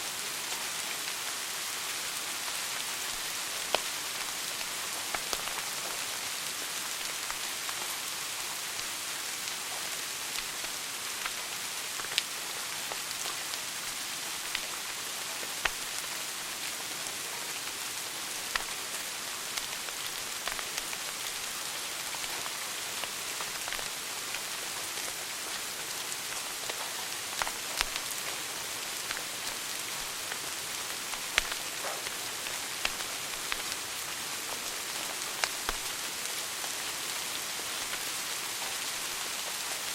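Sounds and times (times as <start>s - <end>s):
wood fire crackling and popping: 15.5s - 16.1s, 18.3s - 25.2s, 26.2s - 36.2s
loud fire snaps: 15.6s - 15.9s, 18.5s - 18.7s, 26.7s - 28.2s, 31.0s - 34.0s, 34.7s - 36.0s.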